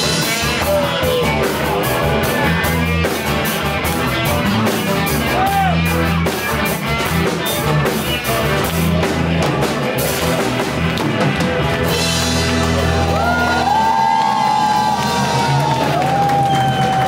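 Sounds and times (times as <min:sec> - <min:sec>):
bending guitar melody notes: 0:00.0 - 0:13.7
live rock band playing: 0:00.0 - 0:17.0.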